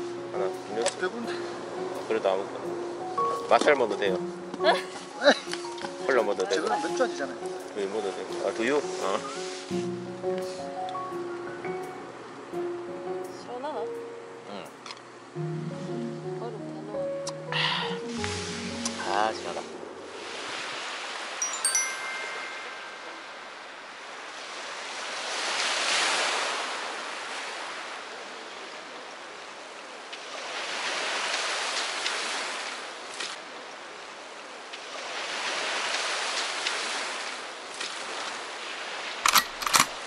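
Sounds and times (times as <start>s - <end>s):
waves breaking on pebble beach: 20.1s - 21.8s, 24.2s - 28.7s, 30.1s - 39.2s.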